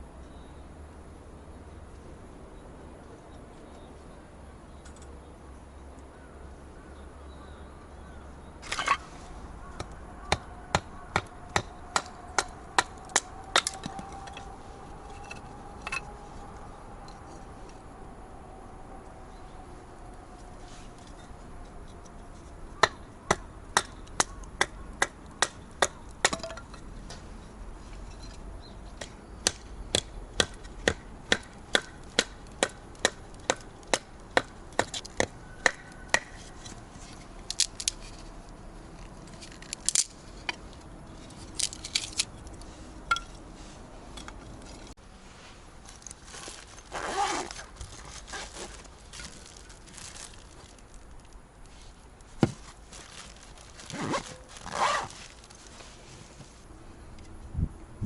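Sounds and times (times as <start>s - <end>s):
short rustle: 36.4s - 56.7s.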